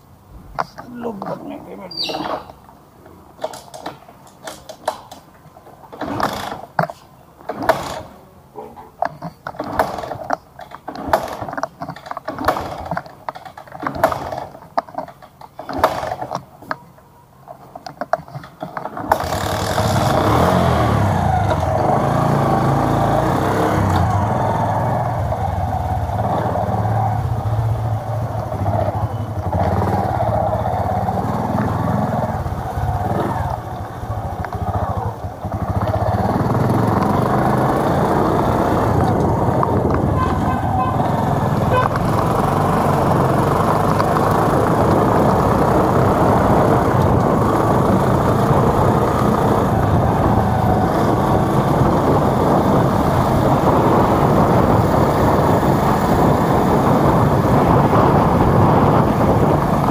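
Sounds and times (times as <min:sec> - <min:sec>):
motorcycle engine running: 0:19.0 - 0:59.9.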